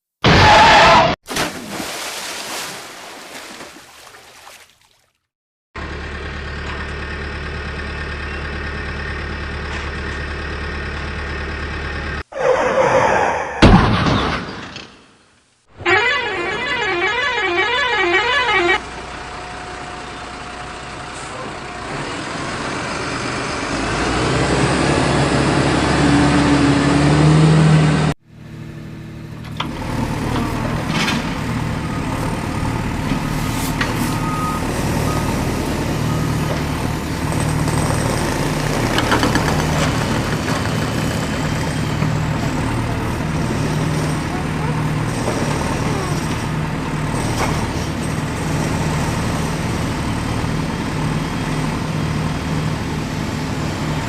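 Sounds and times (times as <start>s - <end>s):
heavy engine running steadily: 5.8s - 12.2s, 18.8s - 27.1s, 27.9s - 54.0s
truck engine revving: 16.2s - 54.0s.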